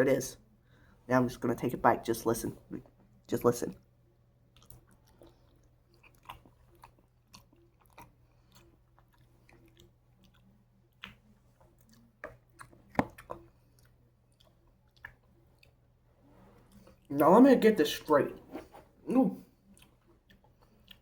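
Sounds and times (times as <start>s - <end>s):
wet chewing of honeycomb: 4.4s - 16.0s, 19.5s - 21.0s.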